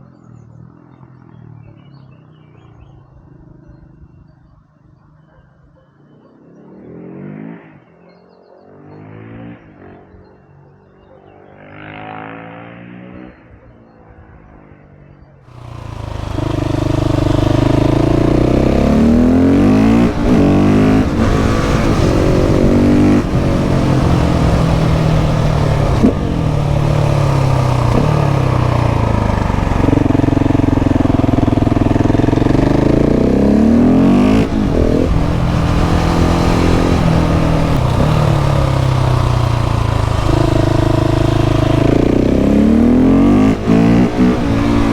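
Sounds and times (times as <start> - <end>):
motorcycle engine revving: 15.5 - 44.9.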